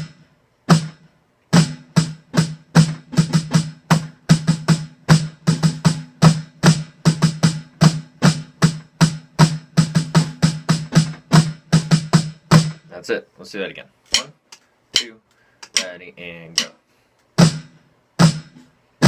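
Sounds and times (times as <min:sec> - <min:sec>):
snare drum played slowly: 0:01.6 - 0:12.9, 0:17.4 - 0:18.6.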